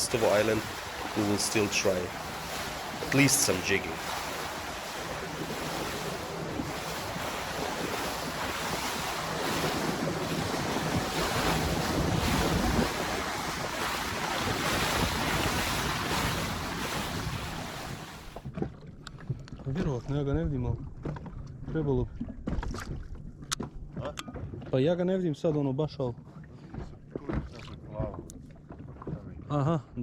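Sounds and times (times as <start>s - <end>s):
wind buffeting microphone: 0.0s - 19.4s
sea water washing around boat: 0.0s - 20.1s.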